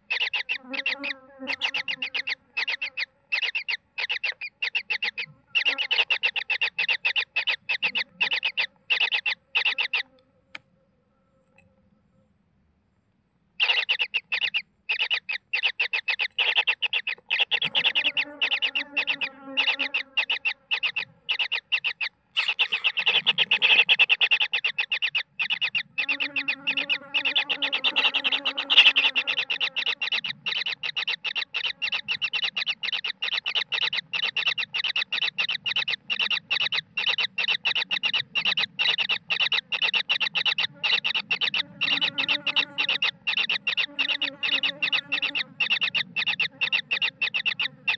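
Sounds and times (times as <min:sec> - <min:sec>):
kingfisher nestlings calling: 0:00.0 - 0:10.0, 0:13.6 - 0:47.9.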